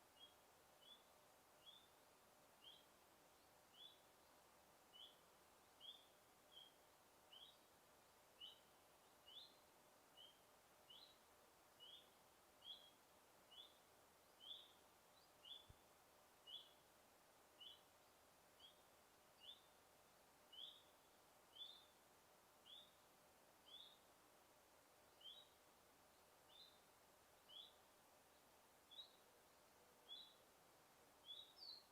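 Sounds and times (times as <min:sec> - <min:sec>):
low steady forest hiss: 0:00.0 - 0:31.9
faint rising bird chirp: 0:20.5 - 0:22.0.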